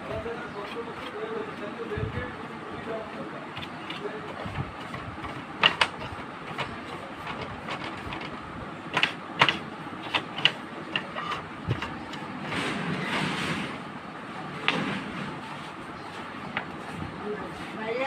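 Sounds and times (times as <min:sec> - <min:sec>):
scraping rustle: 0:00.2 - 0:13.9
hard plastic parts clicking: 0:03.6 - 0:12.3.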